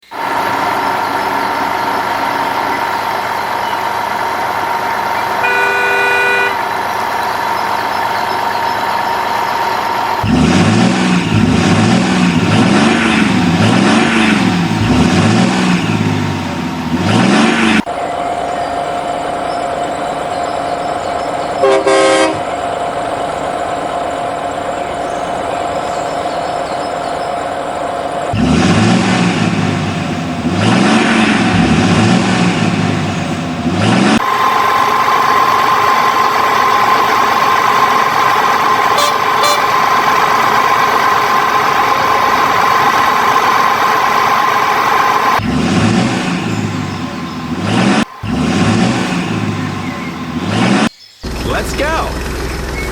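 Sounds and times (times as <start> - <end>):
truck engine humming and revving: 0.0 - 52.9
short horn toot: 5.4 - 6.6, 38.9 - 39.8.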